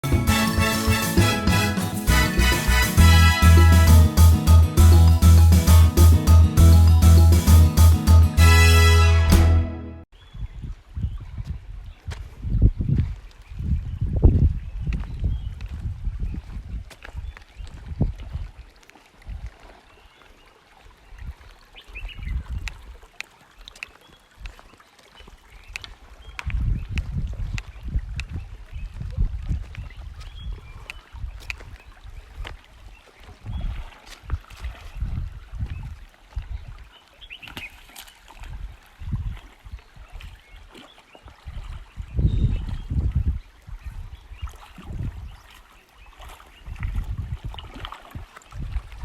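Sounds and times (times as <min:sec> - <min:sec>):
river water splashing: 0:00.0 - 0:09.8, 0:17.0 - 0:26.6, 0:29.3 - 0:42.9, 0:43.5 - 0:49.0.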